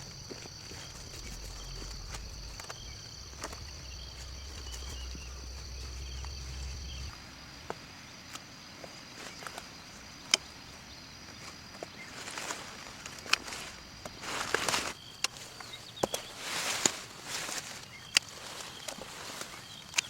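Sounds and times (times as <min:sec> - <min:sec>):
low rumble: 0:00.0 - 0:07.2
insects trilling: 0:00.0 - 0:20.0.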